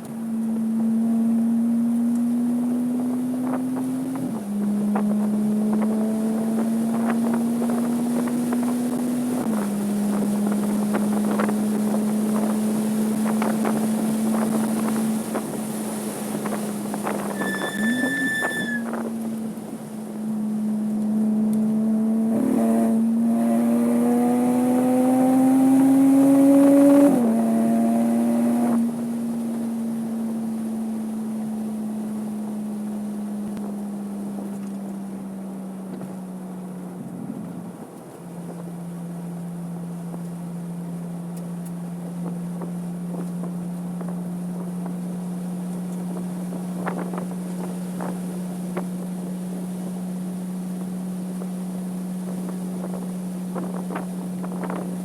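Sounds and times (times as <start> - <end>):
car engine revving: 0.0 - 33.6.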